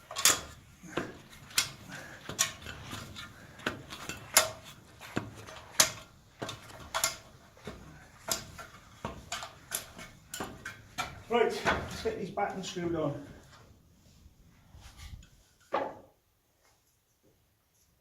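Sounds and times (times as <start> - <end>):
wooden battens knocking: 0.0 - 12.5.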